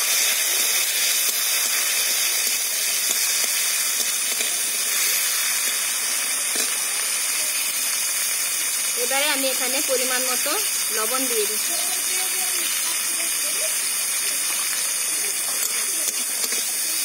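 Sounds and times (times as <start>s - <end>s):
tomato sizzling in oil: 0.0s - 17.0s
metal spatula stirring: 15.5s - 16.7s.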